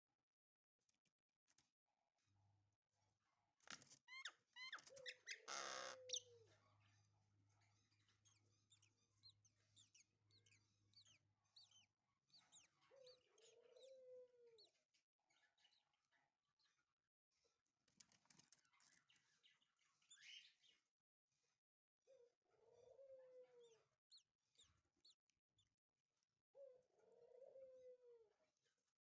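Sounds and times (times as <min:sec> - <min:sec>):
low drawn-out bird calls: 0:04.7 - 0:06.4.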